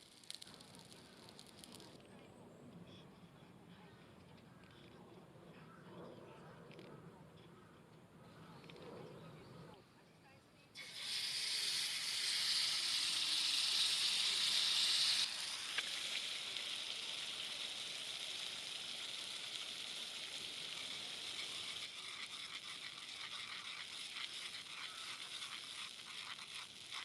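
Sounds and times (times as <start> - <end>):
food sizzling in hot oil: 0.0 - 2.0, 10.8 - 27.0
oil crackles: 0.0 - 2.0, 10.8 - 27.0.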